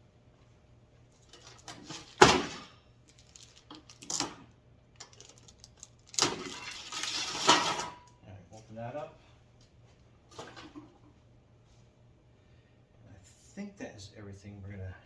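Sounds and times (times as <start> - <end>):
plastic packaging handled: 3.1 - 4.2.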